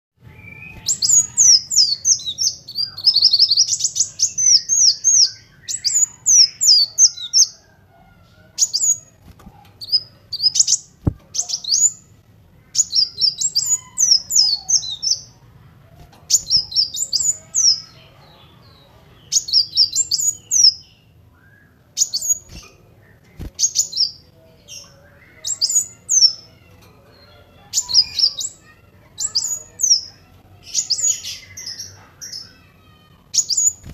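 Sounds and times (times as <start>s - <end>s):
sunbird chirping: 0.2s - 7.6s.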